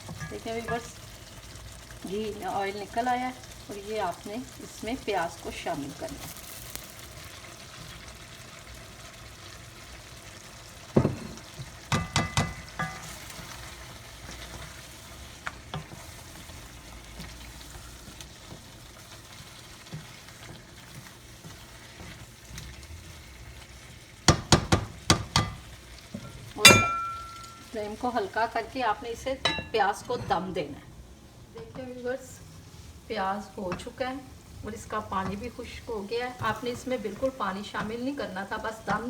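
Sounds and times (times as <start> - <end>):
onions and chicken sizzling in oil: 0.0 - 39.0
spoon knocking against pot: 11.0 - 13.1, 24.3 - 25.6, 26.2 - 27.6.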